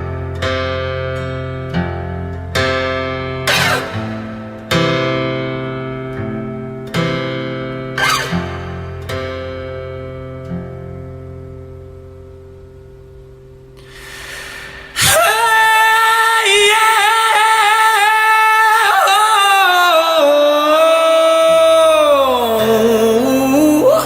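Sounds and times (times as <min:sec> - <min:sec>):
acoustic guitar chord ringing: 0:00.0 - 0:15.6
person singing wordless note: 0:13.8 - 0:24.0.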